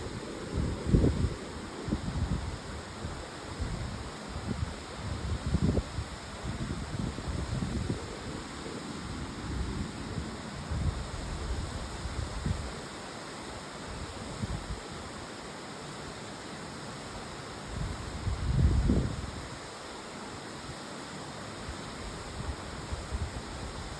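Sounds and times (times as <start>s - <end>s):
wind buffeting microphone: 3.6s - 12.7s.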